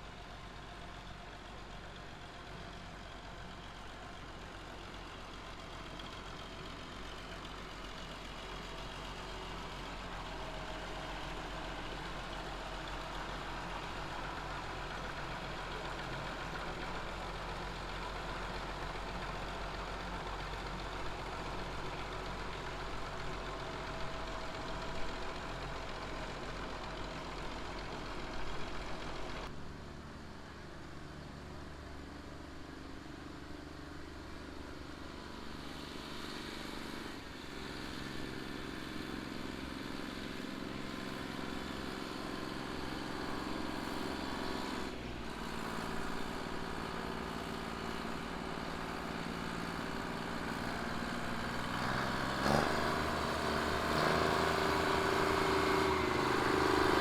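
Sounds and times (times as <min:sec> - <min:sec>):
engines running: 0:36.7 - 0:57.0.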